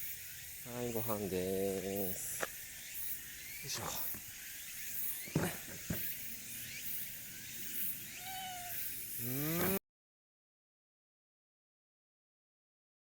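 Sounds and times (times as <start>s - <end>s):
steady high hiss: 0.0s - 9.8s
sharp knocks: 5.2s - 6.2s
cat meowing: 8.2s - 8.9s.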